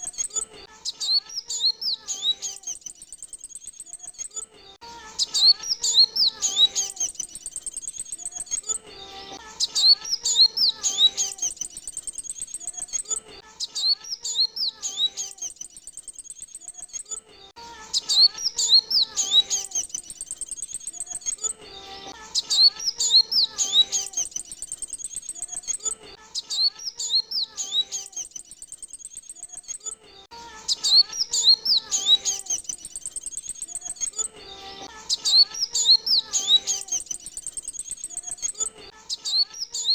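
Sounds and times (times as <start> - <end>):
sunbird chirping song: 0.0 - 17.2, 17.8 - 30.0, 30.6 - 39.9.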